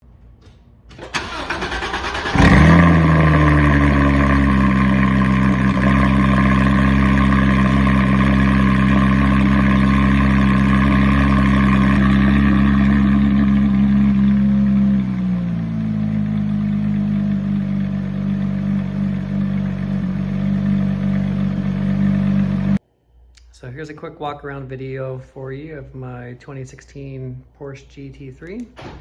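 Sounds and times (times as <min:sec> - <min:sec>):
starter motor cranking: 0:00.9 - 0:03.3
car engine revving and idling: 0:01.2 - 0:22.8.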